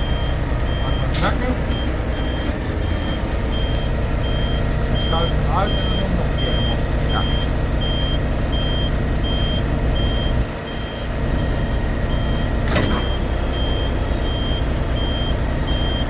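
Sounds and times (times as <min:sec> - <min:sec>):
diesel truck engine running: 0:00.0 - 0:16.0
warning beeper: 0:00.0 - 0:16.0
sharp click: 0:12.6 - 0:13.1.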